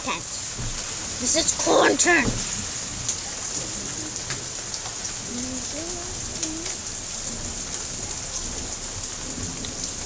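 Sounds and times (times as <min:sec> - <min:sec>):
heavy rain falling: 0:00.0 - 0:10.0.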